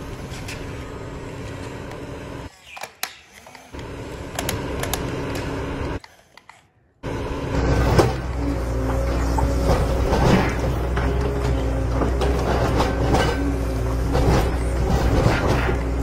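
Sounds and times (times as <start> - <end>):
toy excavator motors whirring: 2.4 - 5.1, 5.9 - 7.0.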